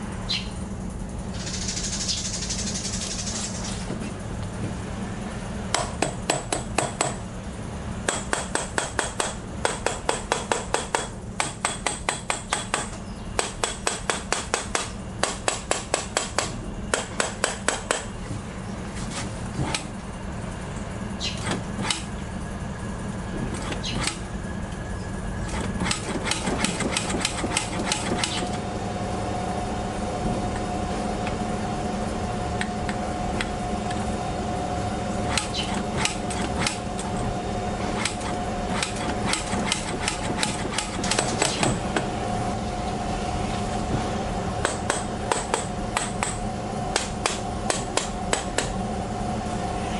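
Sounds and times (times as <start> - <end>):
hammer tapping on metal: 5.7 - 7.2, 8.1 - 18.1.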